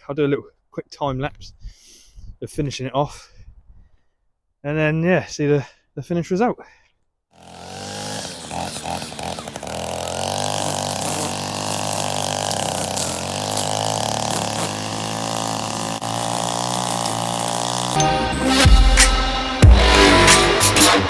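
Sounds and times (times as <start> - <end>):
electronic music: 18.0 - 21.0.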